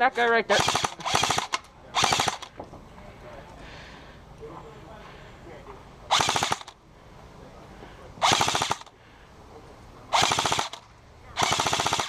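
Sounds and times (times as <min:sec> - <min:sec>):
airsoft gun bursts: 0:00.5 - 0:02.5, 0:06.1 - 0:06.8, 0:08.2 - 0:08.9, 0:10.1 - 0:10.8, 0:11.4 - 0:12.0.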